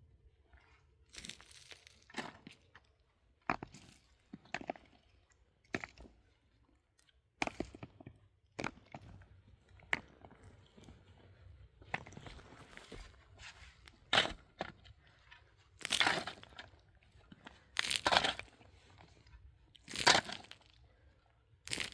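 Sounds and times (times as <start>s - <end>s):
digging tool crunching into ground: 14.0s - 14.7s, 15.8s - 16.6s, 17.8s - 18.6s, 19.9s - 20.6s, 21.7s - 21.9s.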